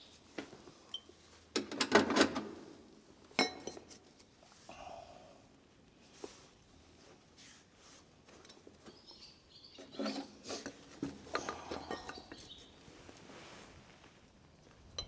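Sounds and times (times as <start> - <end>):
metal tools clinking and scraping: 9.8 - 12.7.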